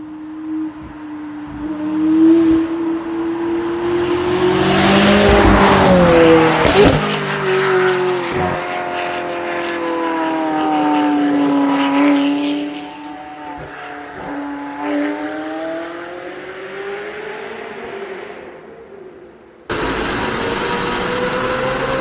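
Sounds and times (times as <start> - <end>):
loud car engine: 0.0 - 18.9, 19.7 - 22.0
exhaust cracks: 3.6 - 7.2.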